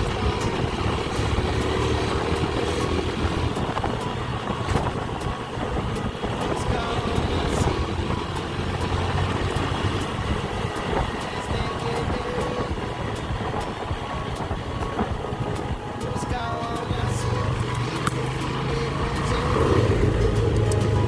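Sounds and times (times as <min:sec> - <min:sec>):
small motorcycle engine running: 0:00.0 - 0:15.7
road noise: 0:00.0 - 0:21.0
wind noise: 0:00.0 - 0:21.0.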